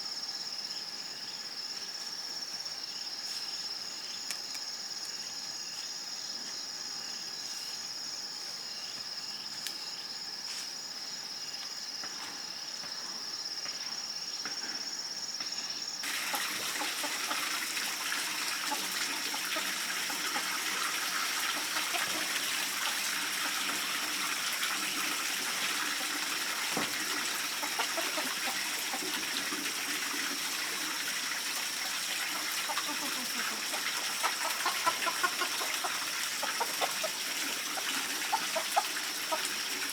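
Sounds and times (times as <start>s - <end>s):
insects chirring: 0.0s - 39.9s
running water: 16.0s - 39.9s.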